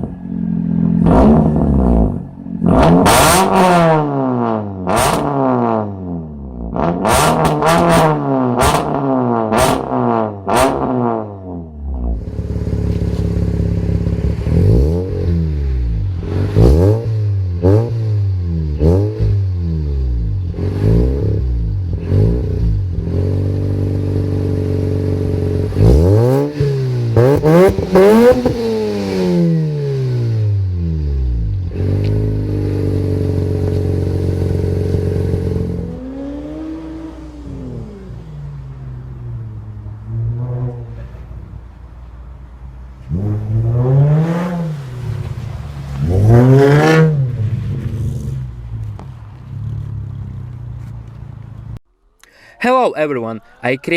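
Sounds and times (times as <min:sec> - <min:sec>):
car engines revving: 0:00.0 - 0:51.8
exhaust pops and crackles: 0:12.2 - 0:14.6, 0:31.4 - 0:35.6, 0:45.0 - 0:51.8.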